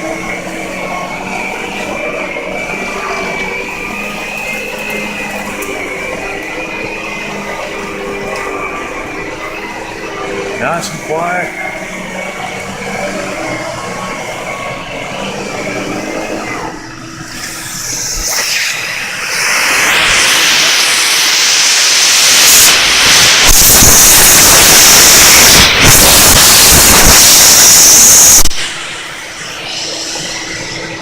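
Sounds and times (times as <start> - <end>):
vacuum cleaner motor hum: 0.0 - 31.0
air rushing hiss: 17.8 - 31.0.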